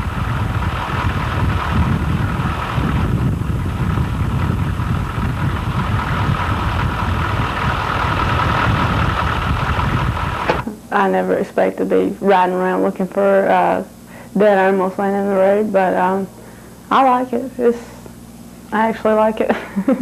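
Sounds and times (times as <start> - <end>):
vehicle engine and road noise: 0.0 - 10.7.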